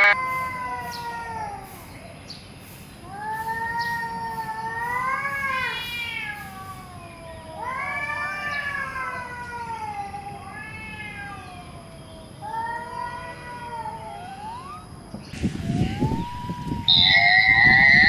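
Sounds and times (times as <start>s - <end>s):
cat meowing: 0.0s - 1.6s, 3.6s - 11.7s, 12.4s - 14.9s.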